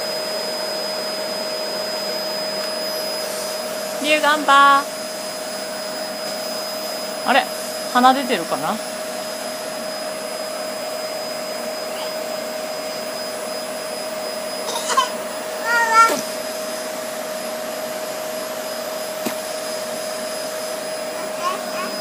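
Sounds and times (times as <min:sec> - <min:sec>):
vacuum cleaner humming: 0:00.0 - 0:22.0
high-pitched cry: 0:14.6 - 0:16.2, 0:21.2 - 0:22.0.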